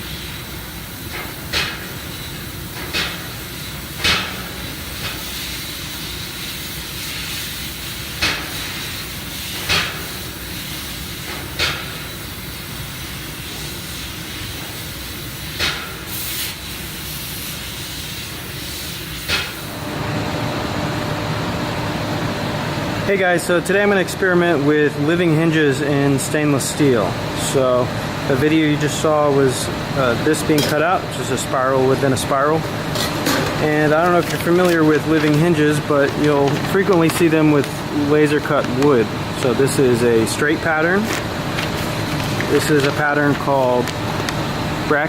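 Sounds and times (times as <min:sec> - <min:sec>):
hiss of assist gas: 0:00.0 - 0:19.7.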